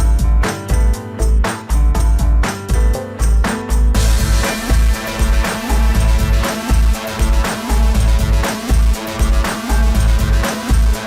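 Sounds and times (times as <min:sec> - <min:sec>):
heavy bass beat: 0:00.0 - 0:11.0
sustained electronic notes: 0:04.0 - 0:11.0.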